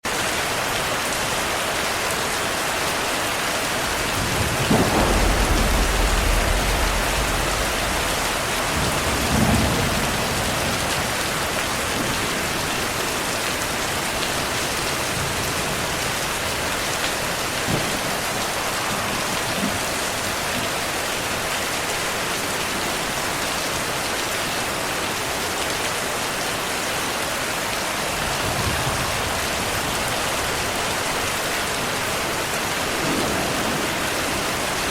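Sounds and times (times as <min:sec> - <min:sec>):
heavy rain: 0:00.0 - 0:34.9
thunder rumbling: 0:03.3 - 0:21.5, 0:27.6 - 0:34.9.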